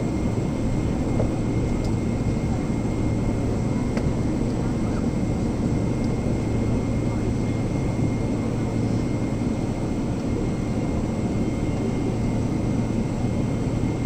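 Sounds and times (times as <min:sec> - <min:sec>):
jet engine drone: 0:00.0 - 0:14.0.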